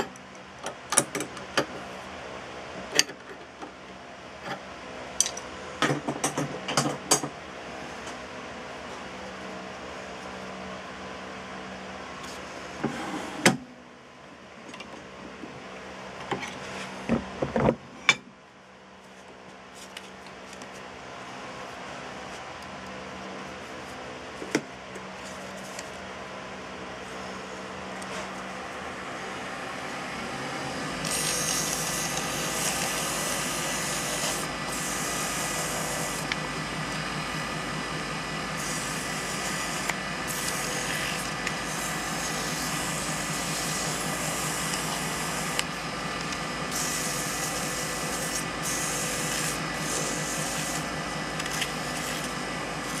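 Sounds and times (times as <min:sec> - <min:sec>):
wood lathe running: 0:29.2 - 0:53.0
rough hissing rub on turning wood: 0:31.0 - 0:36.3, 0:38.5 - 0:45.7, 0:46.7 - 0:53.0.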